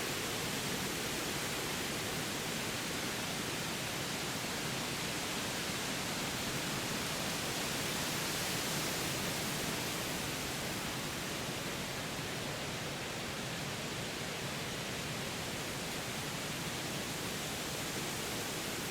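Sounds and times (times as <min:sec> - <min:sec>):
wind rushing through trees: 0:00.0 - 0:18.9.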